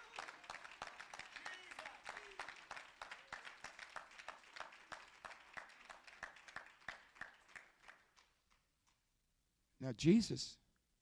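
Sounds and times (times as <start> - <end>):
faint congregation applauding: 0.0 - 8.7.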